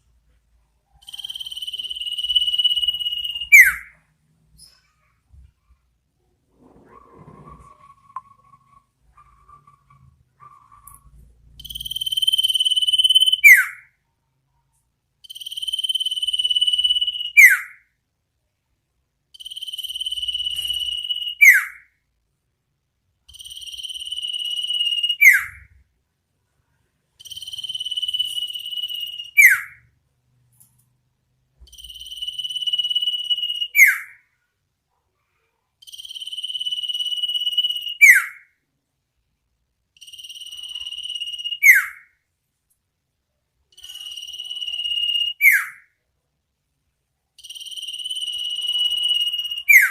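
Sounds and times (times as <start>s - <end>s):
bird trilled whistle call: 40.5s - 42.0s.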